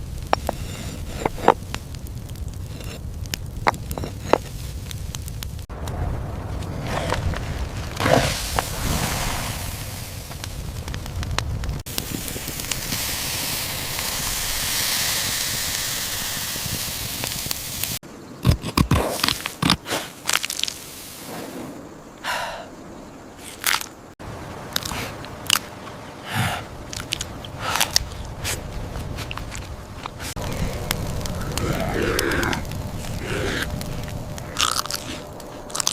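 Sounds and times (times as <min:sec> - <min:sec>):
crunching and rustling: 0:00.0 - 0:13.1, 0:18.4 - 0:21.7, 0:23.4 - 0:24.0, 0:26.8 - 0:35.9
steady hiss: 0:00.0 - 0:18.4, 0:19.1 - 0:35.9.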